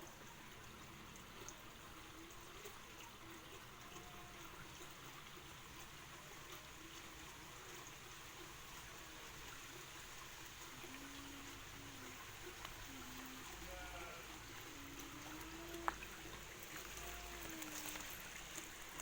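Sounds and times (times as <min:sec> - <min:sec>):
water trickling: 0:00.0 - 0:19.0.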